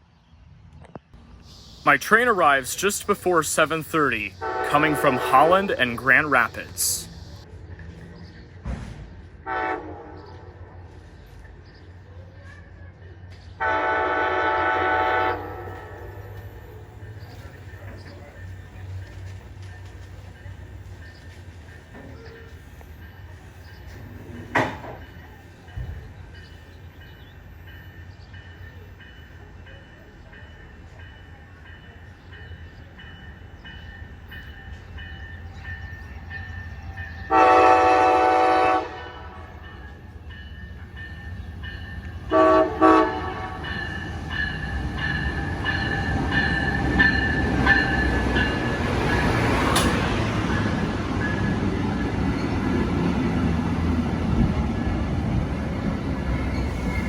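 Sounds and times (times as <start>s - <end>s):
train rumbling: 1.1s - 57.0s
locomotive horn blasts: 2.1s - 6.8s, 9.4s - 10.2s, 13.6s - 16.1s, 37.3s - 39.6s, 42.3s - 43.9s.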